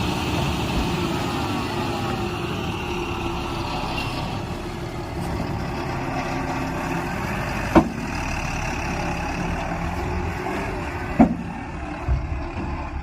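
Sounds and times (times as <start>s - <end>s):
diesel engine running: 0.0s - 13.0s
sharp loud knocks: 7.7s - 8.1s, 11.2s - 12.3s.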